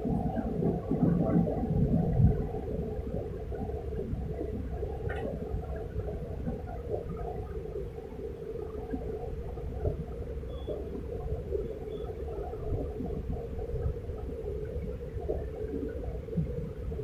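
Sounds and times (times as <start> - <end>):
low room hum and rumble: 0.0 - 17.0.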